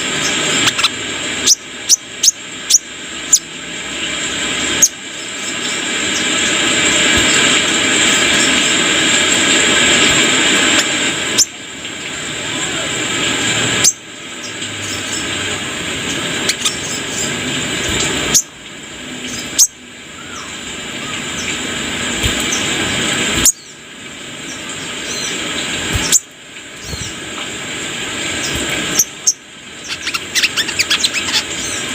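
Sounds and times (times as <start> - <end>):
loud steady hiss: 0.0 - 31.9
bird giving short high chirps: 29.8 - 31.5.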